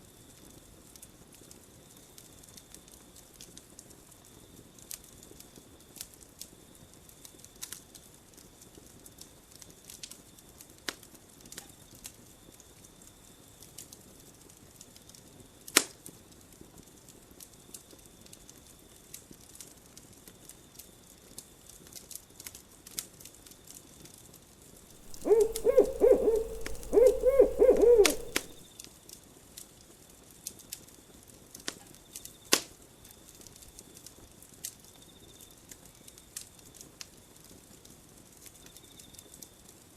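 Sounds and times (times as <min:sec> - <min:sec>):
campfire wood crackling: 0:25.1 - 0:28.6
owl hooting: 0:25.1 - 0:28.6.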